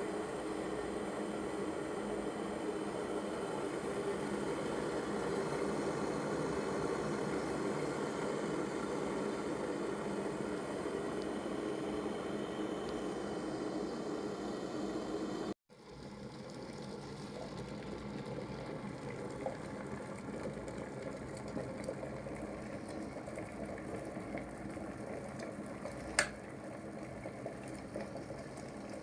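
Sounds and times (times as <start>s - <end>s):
kettle water bubbling: 0.0s - 29.0s
kettle switch click: 26.2s - 26.4s.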